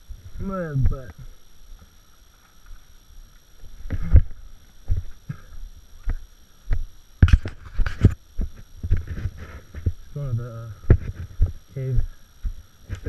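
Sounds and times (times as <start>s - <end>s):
footsteps on rock and mud: 3.8s - 10.0s, 10.8s - 13.0s.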